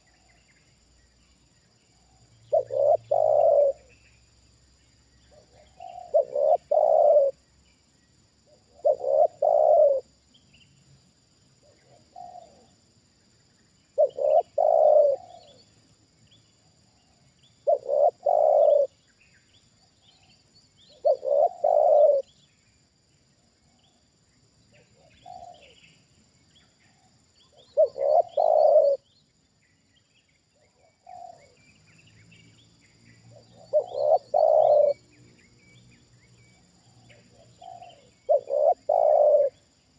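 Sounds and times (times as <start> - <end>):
small birds chirping: 0.0 - 39.9
dove cooing: 2.5 - 3.9, 5.4 - 7.4, 8.5 - 10.1, 11.6 - 12.7, 14.0 - 15.6, 17.6 - 19.0, 20.9 - 22.3, 24.9 - 25.8, 26.9 - 29.1, 30.8 - 31.6, 33.3 - 35.0, 36.9 - 39.6.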